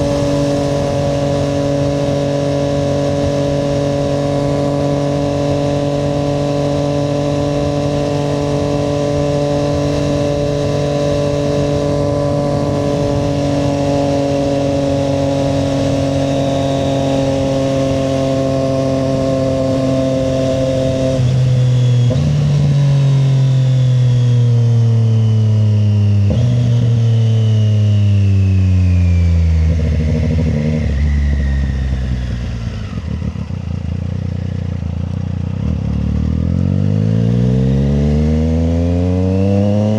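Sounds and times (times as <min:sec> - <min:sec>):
motorcycle engine downshifting: 0:00.0 - 0:39.9.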